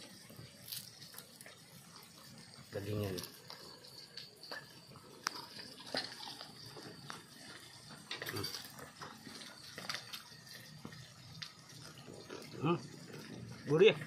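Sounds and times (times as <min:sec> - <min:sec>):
person chewing meat: 0:04.8 - 0:13.6.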